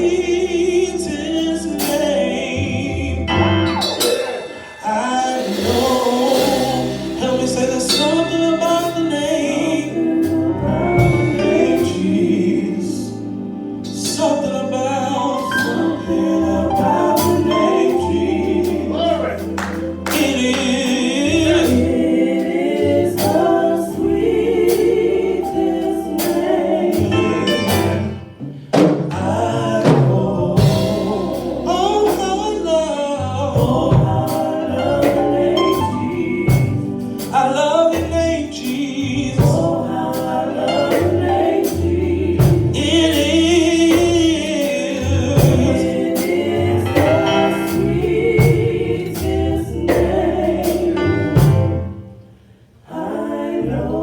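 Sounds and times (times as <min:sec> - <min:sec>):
voices singing gospel: 0:00.0 - 0:54.0
low organ chords: 0:04.6 - 0:28.6.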